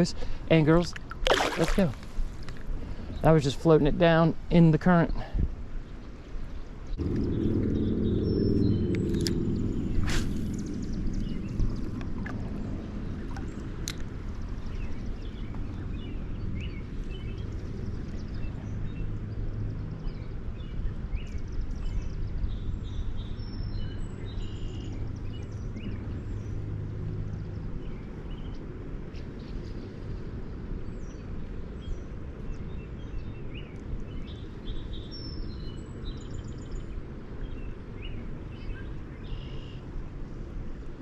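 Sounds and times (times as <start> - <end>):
low rumble of wind or water: 0.0 - 41.0
low hum: 5.9 - 32.6
bird chirps: 38.0 - 39.8.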